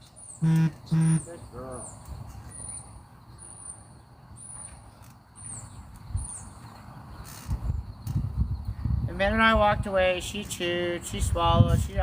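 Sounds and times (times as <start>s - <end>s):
small bird chirping: 0.0s - 8.8s.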